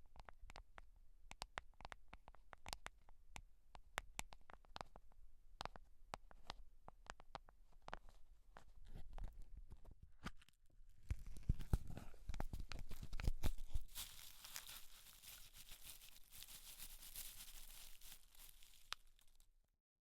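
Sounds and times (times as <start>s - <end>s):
crinkly hair rustle: 11.1s - 19.5s.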